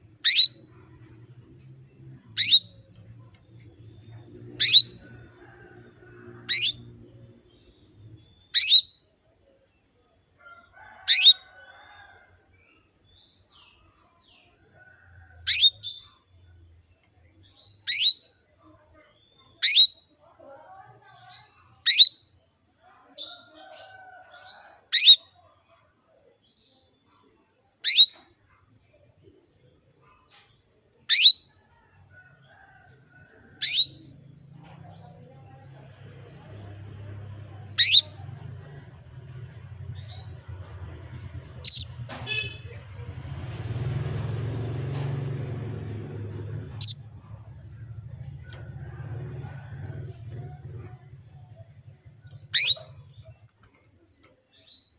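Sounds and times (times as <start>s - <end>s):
canary chirping: 0.1s - 9.0s, 15.5s - 16.1s, 17.5s - 18.2s, 19.6s - 20.0s, 21.2s - 22.3s, 27.8s - 28.2s, 30.6s - 31.4s, 33.6s - 34.2s, 35.2s - 38.6s, 39.3s - 43.0s, 43.8s - 48.8s, 49.6s - 53.3s.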